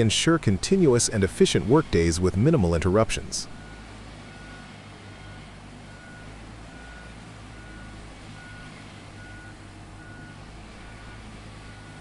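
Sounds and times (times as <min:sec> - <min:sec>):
low engine hum: 0:00.0 - 0:12.0
reversing alarm beeping: 0:03.6 - 0:12.0.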